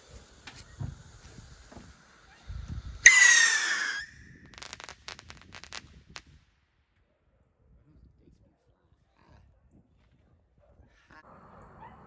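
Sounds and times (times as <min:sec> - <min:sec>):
firework crackling pops: 0:00.0 - 0:06.8
firework whistle: 0:02.2 - 0:05.7.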